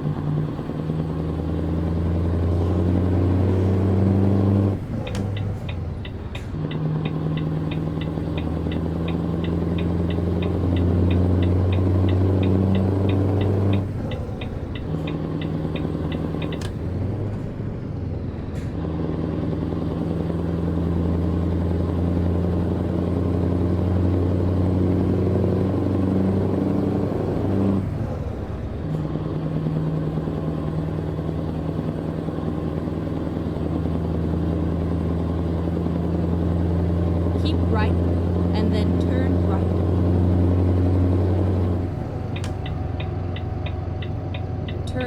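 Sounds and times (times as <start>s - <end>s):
truck diesel engine running: 0.0s - 45.0s
fast regular ticking: 5.2s - 16.7s, 42.3s - 45.0s.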